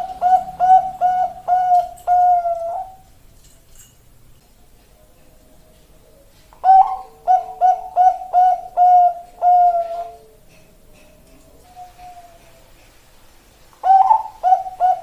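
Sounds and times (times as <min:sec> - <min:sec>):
dove cooing: 0:00.0 - 0:03.1, 0:06.0 - 0:12.8, 0:13.8 - 0:15.0.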